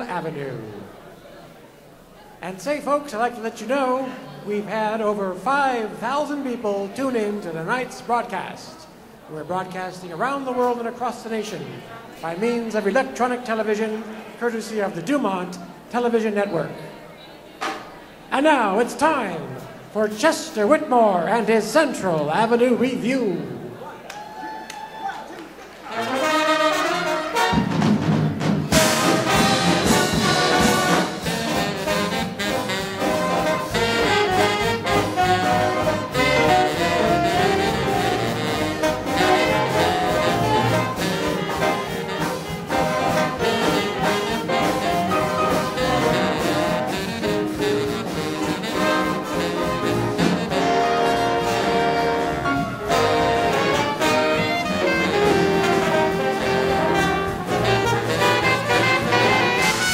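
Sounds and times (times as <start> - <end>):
big band swing music: 17.6 - 23.8, 25.4 - 59.9.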